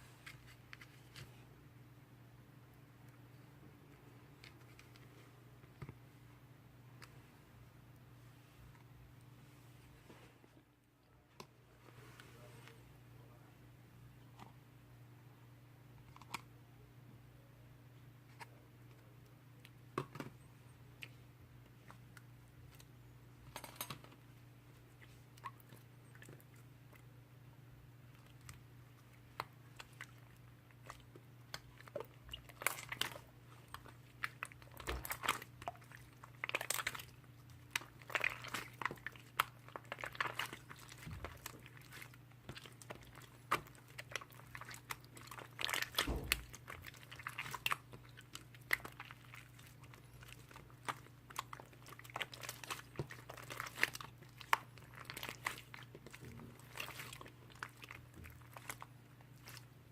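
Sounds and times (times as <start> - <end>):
slime squishing by hand: 19.6 - 59.9.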